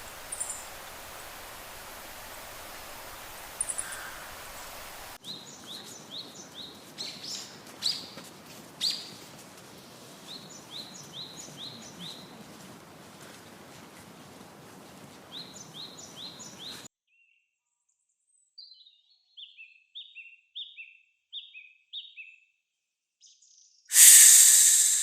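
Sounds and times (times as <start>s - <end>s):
steady hiss: 0.0s - 6.1s, 23.9s - 25.0s
faint high chirps: 23.9s - 25.0s.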